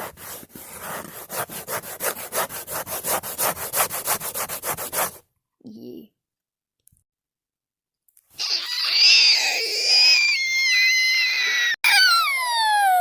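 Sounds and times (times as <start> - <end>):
high-pitched scream: 8.4 - 13.0.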